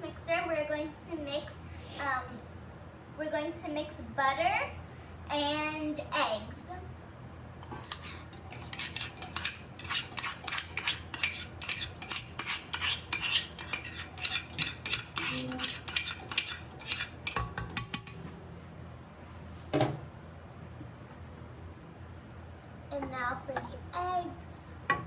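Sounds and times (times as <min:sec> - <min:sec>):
utensil clinking against mixing bowl: 0:07.6 - 0:18.3, 0:23.0 - 0:23.8.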